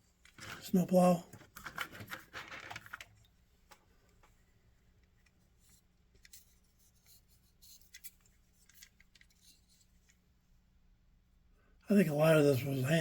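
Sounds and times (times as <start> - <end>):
faint clicks of model train cars: 0.1 - 10.3.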